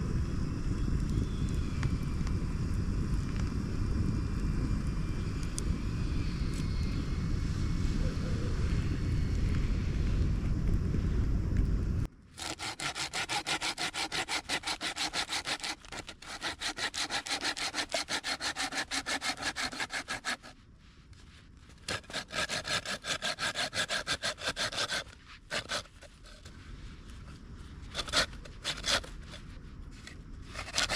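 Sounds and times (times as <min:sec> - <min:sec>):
hand saw cutting wood: 0:12.4 - 0:20.6, 0:21.8 - 0:26.5, 0:27.9 - 0:29.4, 0:30.5 - 0:30.9.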